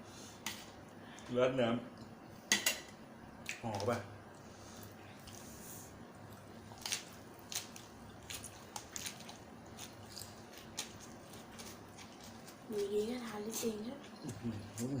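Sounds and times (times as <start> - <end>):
person chewing food: 6.2 - 12.7.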